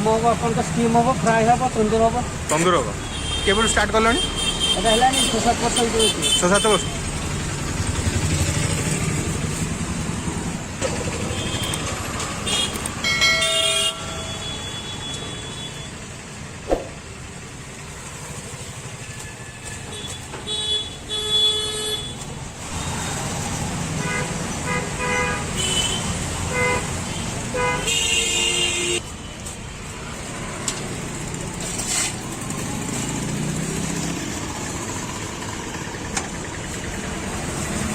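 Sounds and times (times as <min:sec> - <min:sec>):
passing road traffic: 0:00.0 - 0:37.9
vehicle horns honking: 0:03.0 - 0:07.0, 0:11.2 - 0:15.9, 0:19.4 - 0:22.2, 0:24.0 - 0:29.0
engine rumble: 0:06.7 - 0:13.0.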